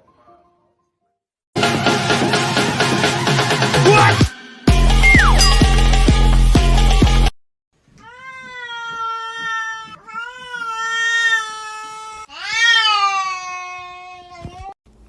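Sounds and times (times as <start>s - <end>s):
cat meowing: 8.0s - 14.7s.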